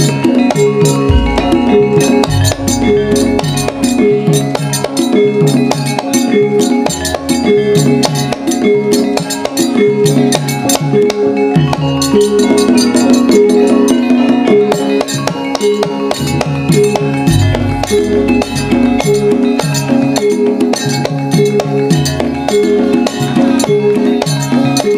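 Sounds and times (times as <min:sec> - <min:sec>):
sharp drum strokes: 0:00.0 - 0:05.8
metallophones ringing melody: 0:00.0 - 0:24.9.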